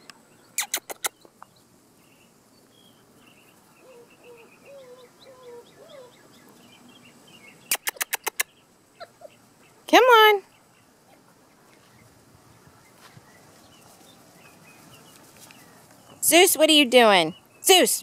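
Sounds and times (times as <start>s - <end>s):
birds chirping faintly: 0.0s - 18.0s
sharp clicks: 0.6s - 1.4s, 7.7s - 8.5s.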